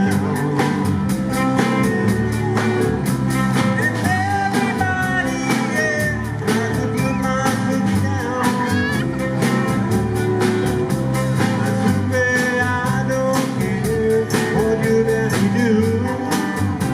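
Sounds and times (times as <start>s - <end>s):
gliding lead melody: 0.0s - 14.2s
live rock band playing: 0.0s - 16.9s.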